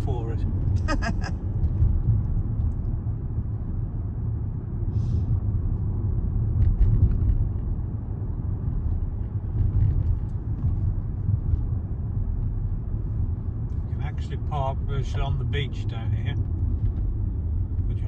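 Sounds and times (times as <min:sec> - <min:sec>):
car cabin road and engine rumble: 0:00.0 - 0:18.0.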